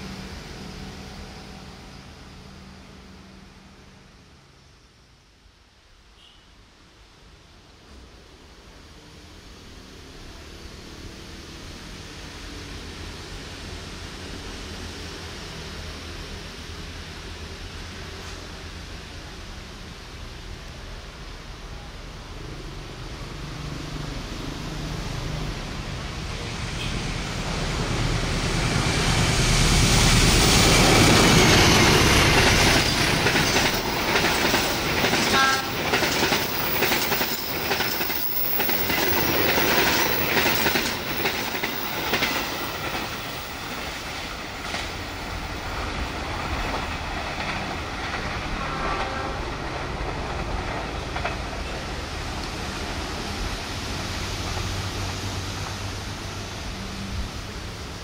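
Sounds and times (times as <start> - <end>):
diesel locomotive engine passing: 0.0 - 4.7, 7.7 - 58.0
train wheels clattering over rail joints: 30.8 - 45.1, 46.3 - 52.0.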